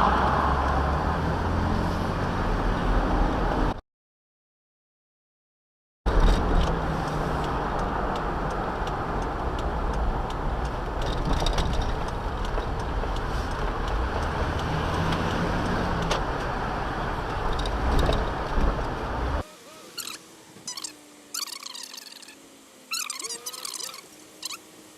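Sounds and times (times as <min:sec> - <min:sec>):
car driving road noise: 0:00.0 - 0:03.8, 0:06.1 - 0:24.9
faint ticks: 0:06.2 - 0:16.5.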